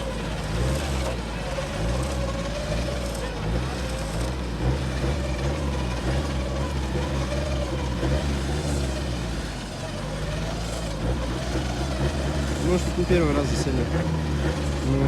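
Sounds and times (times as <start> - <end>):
off-road engine running with whine: 0.0 - 15.0.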